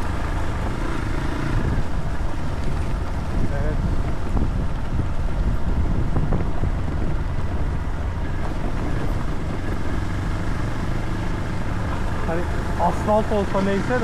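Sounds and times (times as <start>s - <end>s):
rumbling road noise: 0.0s - 14.0s
vehicle engine drone: 0.0s - 14.0s
wind on microphone: 1.5s - 12.2s.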